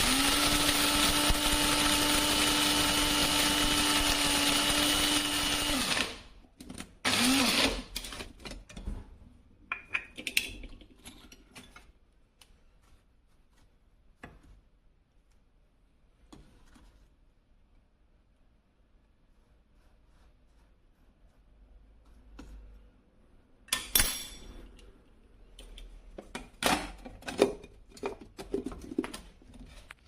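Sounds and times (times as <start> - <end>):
coffee grinder motor humming: 0.0 - 6.2.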